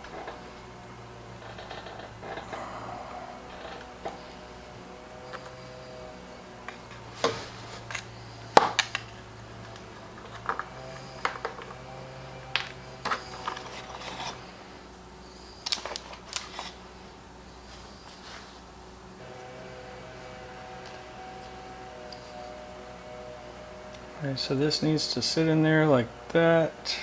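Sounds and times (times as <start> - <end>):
hand tools clicking and knocking: 0.0 - 14.9
faint steady hum: 0.0 - 27.0.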